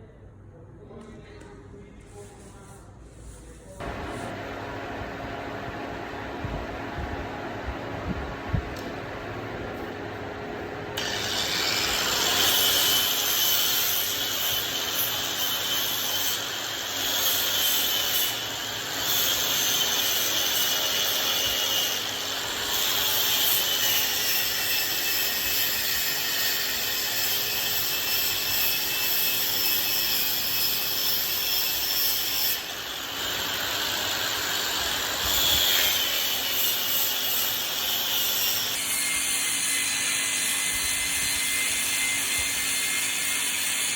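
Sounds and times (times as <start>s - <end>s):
high whine: 3.8s - 12.1s
power tool sanding wood: 11.0s - 43.9s.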